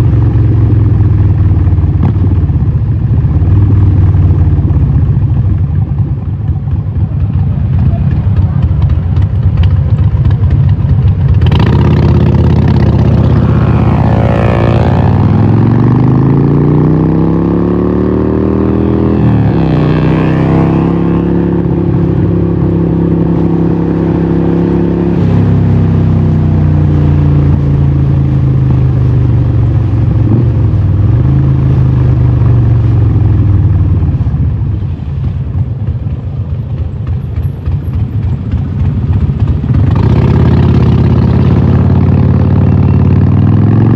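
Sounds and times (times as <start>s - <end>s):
motorcycle engine revving: 0.0s - 34.4s, 35.2s - 43.9s.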